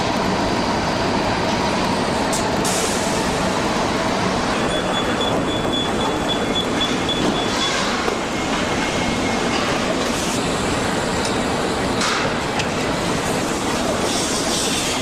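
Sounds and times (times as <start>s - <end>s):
machinery and conveyors din: 0.0s - 15.0s
high electronic beeping: 4.6s - 9.5s.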